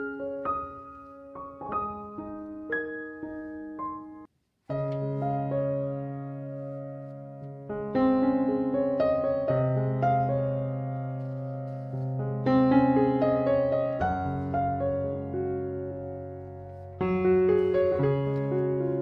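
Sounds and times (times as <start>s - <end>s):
gentle piano chords: 0.0s - 19.0s.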